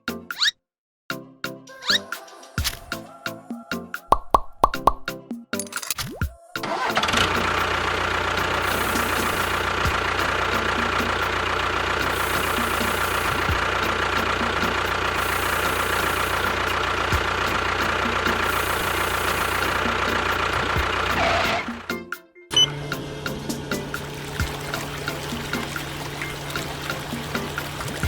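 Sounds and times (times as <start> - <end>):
motor whining and humming: 7.0 - 21.8, 22.6 - 27.9.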